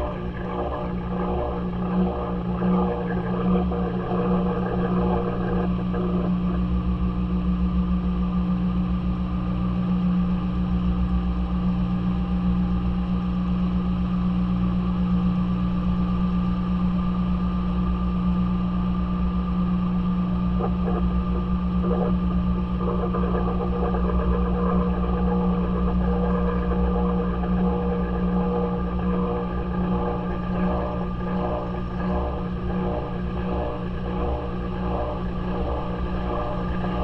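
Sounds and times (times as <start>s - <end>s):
washing machine motor hum: 0.0s - 7.5s, 18.6s - 37.0s.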